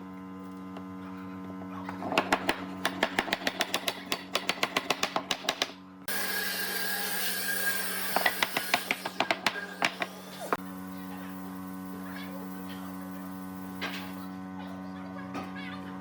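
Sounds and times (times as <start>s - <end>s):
steady hum: 5.8s - 15.2s.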